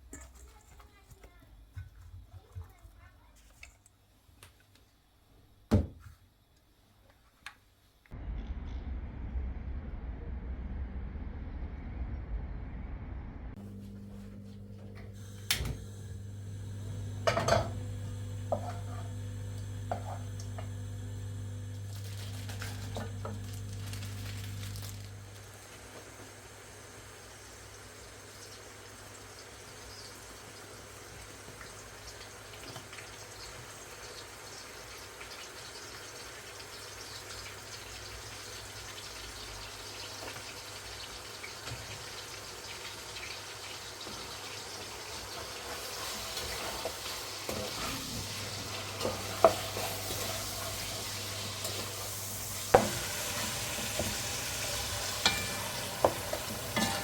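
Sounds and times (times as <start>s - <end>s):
low hum: 8.1s - 25.2s
tap water running: 13.6s - 57.0s
kitchenware clinking: 17.2s - 19.1s, 55.1s - 57.0s.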